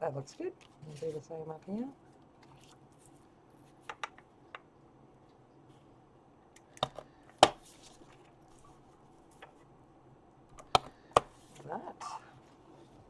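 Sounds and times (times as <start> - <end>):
craft tools clicking and tapping: 3.9 - 4.7, 6.6 - 7.6, 10.5 - 11.4
paper being handled: 7.4 - 9.6.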